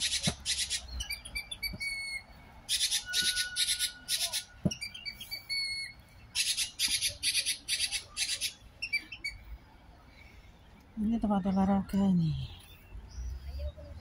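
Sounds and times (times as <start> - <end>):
harsh high-pitched bird calls: 0.0 - 9.4.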